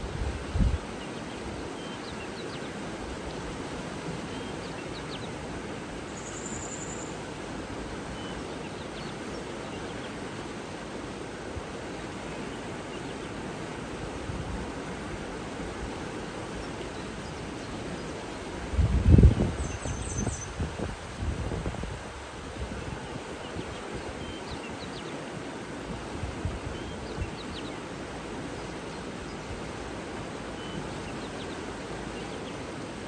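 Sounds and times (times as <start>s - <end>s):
rushing water: 0.0s - 33.0s
small birds chirping: 6.1s - 7.2s, 19.4s - 20.6s.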